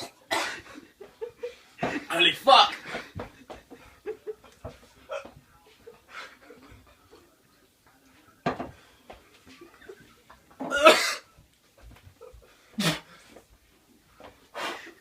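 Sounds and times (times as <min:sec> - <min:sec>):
man coughing harshly: 0:00.0 - 0:00.7, 0:10.6 - 0:11.3.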